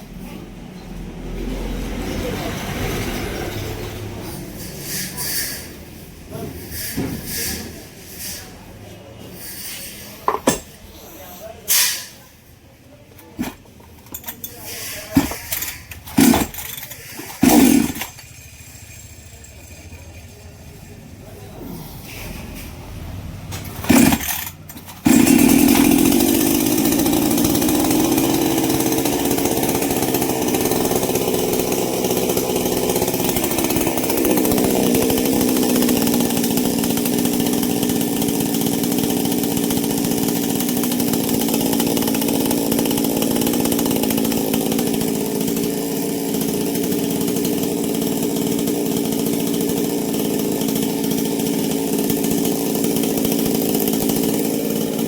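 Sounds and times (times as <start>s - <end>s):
chainsaw engine running: 13.1s - 22.3s, 23.0s - 55.0s.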